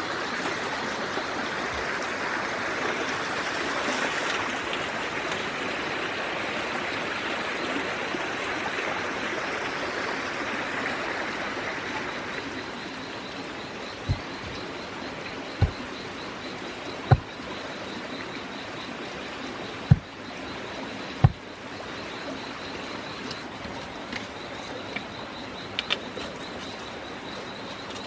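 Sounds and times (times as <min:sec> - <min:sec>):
faint high steady tone: 0:11.4 - 0:28.0
dull low thumps: 0:14.0 - 0:14.7, 0:15.6 - 0:15.9, 0:17.1 - 0:17.4, 0:19.9 - 0:20.2, 0:21.2 - 0:21.4.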